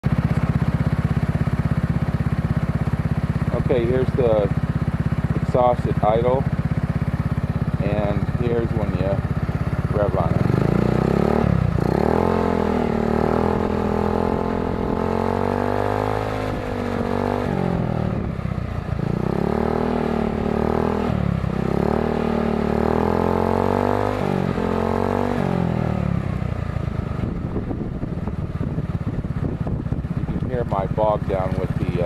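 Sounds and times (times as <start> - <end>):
scooter engine revving: 0.0 - 32.0.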